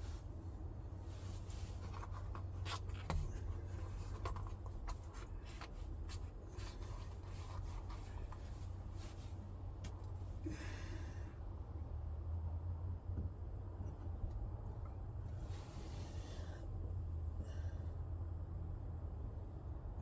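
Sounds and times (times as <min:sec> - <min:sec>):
steady low hum: 0:00.0 - 0:20.0
scraping and rubbing of parts: 0:00.9 - 0:10.1.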